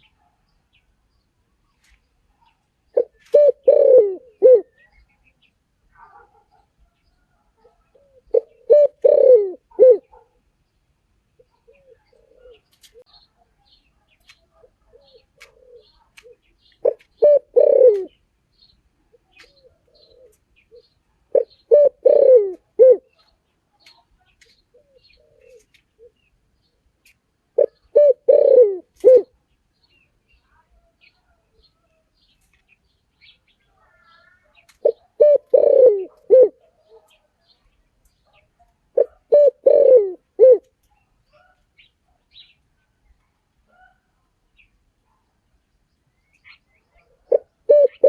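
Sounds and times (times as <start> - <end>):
dove cooing: 2.9 - 4.9, 7.6 - 10.3, 11.5 - 13.1, 14.6 - 18.2, 19.4 - 23.3, 24.7 - 26.2, 27.6 - 29.4, 34.8 - 37.2, 39.0 - 40.7, 47.2 - 48.0.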